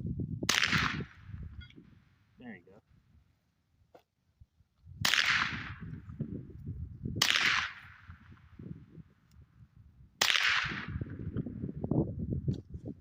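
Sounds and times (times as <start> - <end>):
suppressed rifle shots: 0.5 - 1.2, 5.0 - 6.0, 7.2 - 8.4, 10.2 - 11.4.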